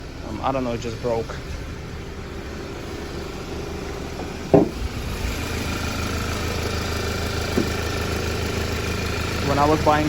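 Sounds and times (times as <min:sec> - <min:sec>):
car engine idling: 0:00.0 - 0:10.0
sharp knock: 0:04.5 - 0:04.8.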